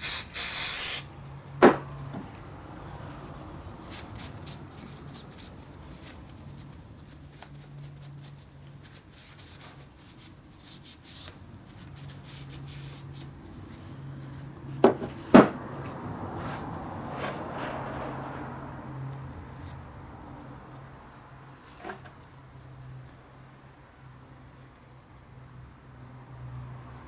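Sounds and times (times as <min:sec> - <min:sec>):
hand rubbing metal parts: 0:00.0 - 0:01.1.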